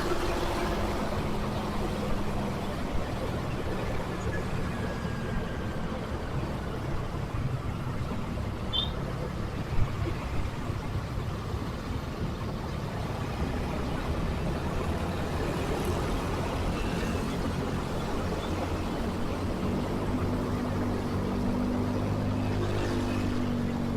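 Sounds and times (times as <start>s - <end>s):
traffic rumble: 0.0s - 23.9s
short high chirp: 8.7s - 9.0s.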